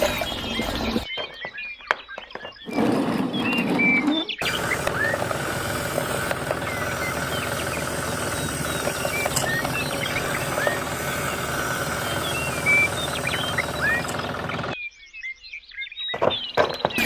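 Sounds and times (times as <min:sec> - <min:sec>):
small motor rattling: 0:00.0 - 0:01.1, 0:02.7 - 0:14.8
birds chirping: 0:00.0 - 0:17.0.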